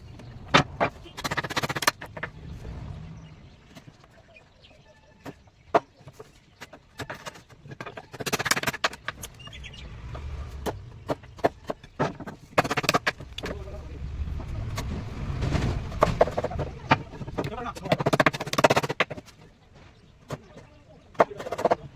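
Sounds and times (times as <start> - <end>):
low rumble: 13.1 - 17.8.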